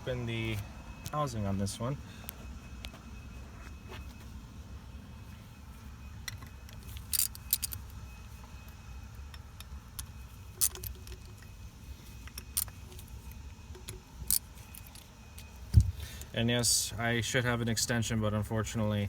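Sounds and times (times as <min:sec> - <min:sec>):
metal tools clinking: 0:06.2 - 0:08.0, 0:09.3 - 0:16.3.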